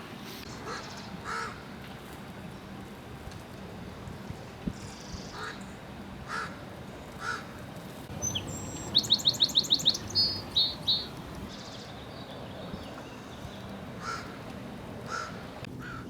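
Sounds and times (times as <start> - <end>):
crow cawing: 0.6 - 1.6, 6.3 - 6.6, 7.2 - 7.5, 14.0 - 14.4, 15.1 - 16.0
songbird singing high trill: 8.1 - 13.7.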